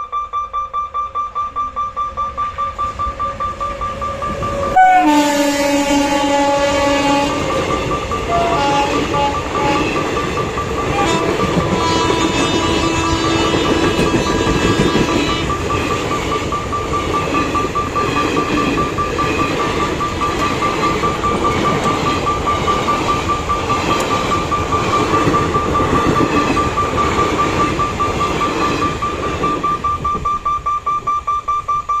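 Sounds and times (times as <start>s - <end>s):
pulsing high-pitched tone: 0.0s - 5.0s
train coaches rumbling past: 2.2s - 30.6s.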